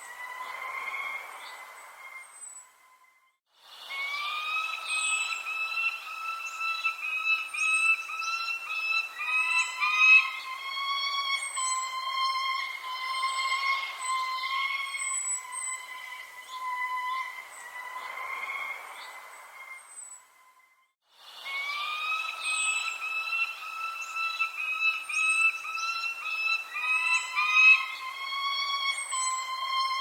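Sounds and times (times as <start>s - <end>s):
whistling tone: 0.0s - 18.6s, 19.6s - 30.0s
birds chirping: 0.0s - 20.6s, 21.4s - 30.0s.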